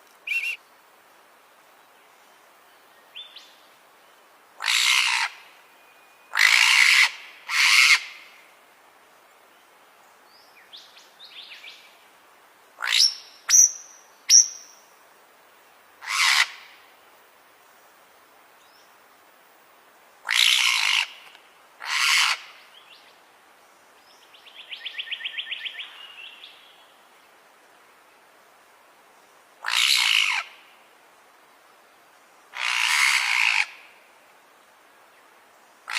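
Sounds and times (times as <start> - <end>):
bird calling: 0.2 - 0.6.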